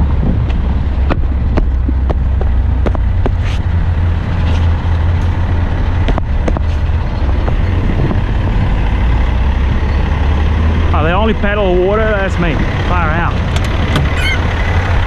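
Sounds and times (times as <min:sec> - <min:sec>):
sharp knocks and rattles: 0:00.0 - 0:03.5, 0:04.4 - 0:08.2
diesel truck engine humming: 0:00.0 - 0:15.0.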